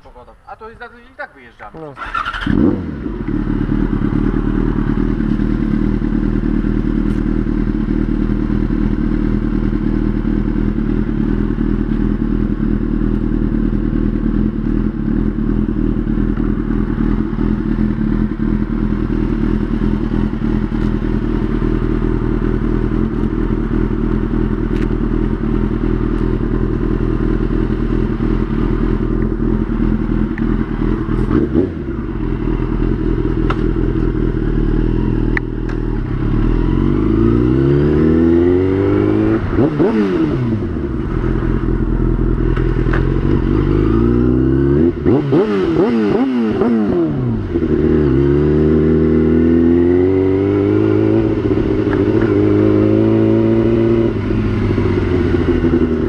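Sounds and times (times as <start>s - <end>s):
motorcycle engine idling: 0.0s - 38.1s, 39.3s - 45.1s, 54.0s - 56.0s.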